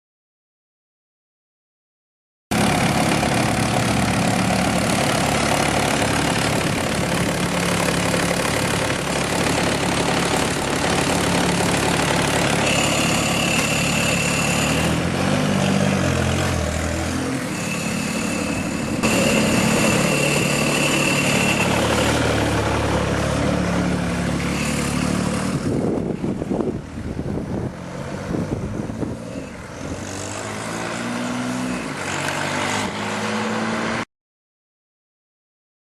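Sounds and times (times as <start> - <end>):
diesel motorcycle engine running: 2.5 - 30.4
high steady whistle: 12.6 - 14.9, 17.5 - 22.1.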